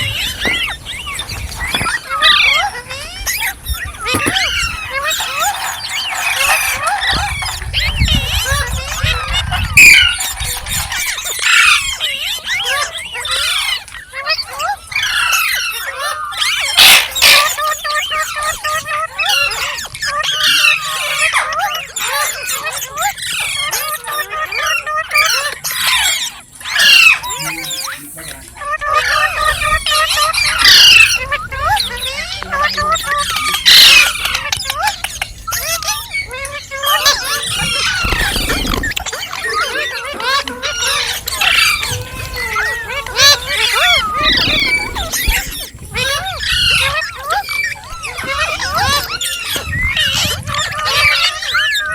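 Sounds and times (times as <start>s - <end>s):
parakeet harsh screeches: 1.6s - 13.8s, 40.2s - 50.3s
parakeet chattering: 3.1s - 11.8s, 43.0s - 48.0s.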